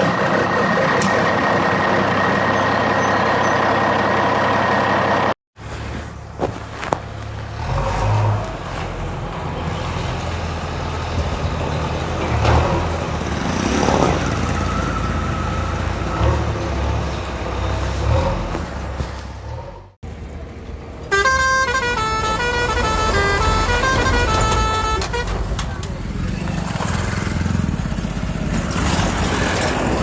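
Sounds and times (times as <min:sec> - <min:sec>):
heavy vehicle engine rumbling: 0:00.0 - 0:30.0.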